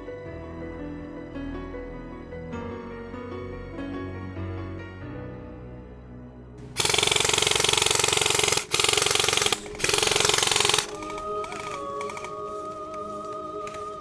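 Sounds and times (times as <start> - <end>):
background music: 0.0 - 14.0
airsoft gun firing full auto: 6.6 - 12.3.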